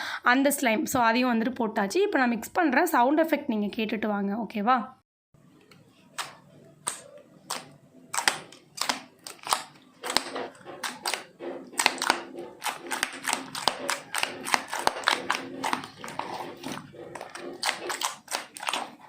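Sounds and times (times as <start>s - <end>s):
slime squishing with clicks and pops: 5.7s - 11.2s.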